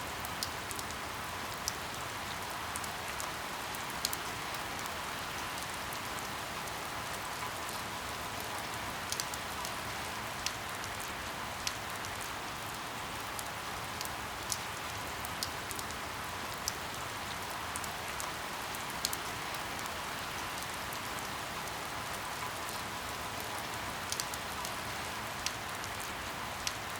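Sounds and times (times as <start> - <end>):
steady rain hiss: 0.0 - 26.9.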